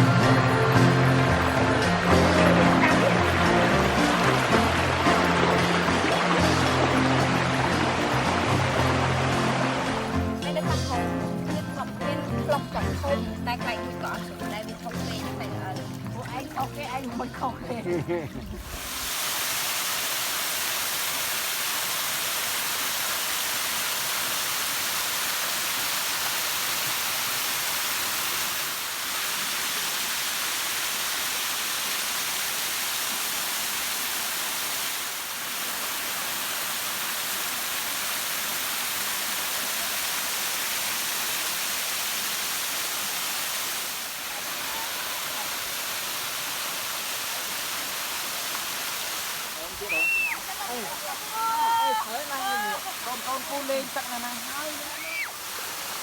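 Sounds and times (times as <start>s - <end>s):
water rushing down a waterfall: 0.0s - 56.0s.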